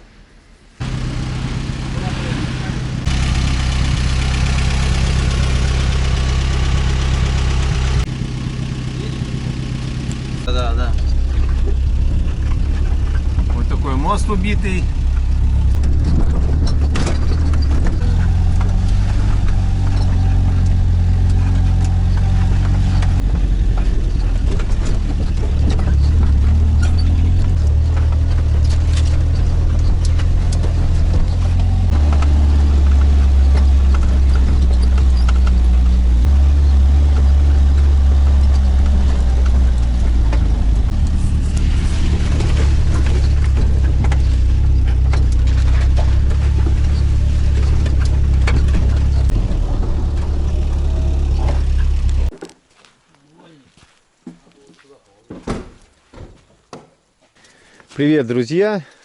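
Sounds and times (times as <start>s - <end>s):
car engine running: 0.8s - 52.3s
knocks and rattles: 10.2s - 52.6s.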